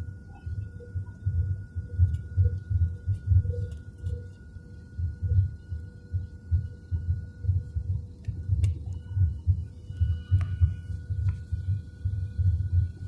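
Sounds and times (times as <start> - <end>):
faint steady hum: 0.0 - 13.0
low irregular thumping: 5.0 - 13.0.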